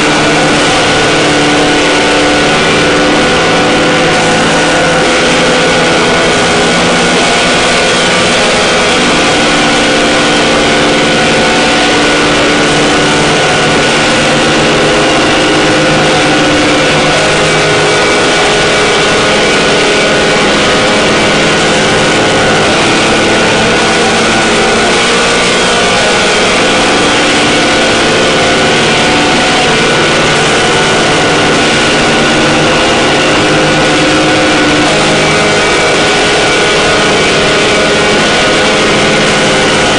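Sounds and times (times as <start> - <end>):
harsh noise drone music: 0.0 - 39.9.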